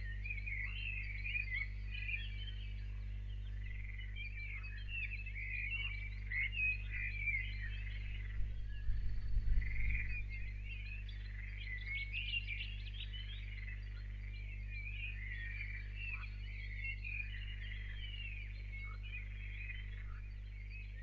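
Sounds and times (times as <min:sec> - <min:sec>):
low electrical hum: 0:00.0 - 0:21.0
small birds singing: 0:00.0 - 0:21.0
low rumble: 0:06.8 - 0:11.8.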